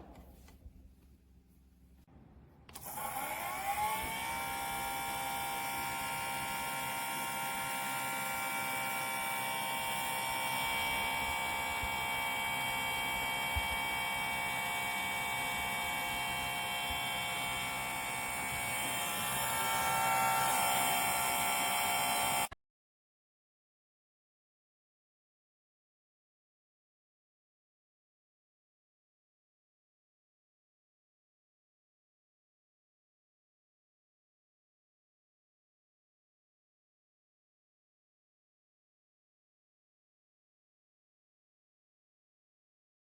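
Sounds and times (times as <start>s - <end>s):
space heater fan whirring: 2.7s - 22.5s.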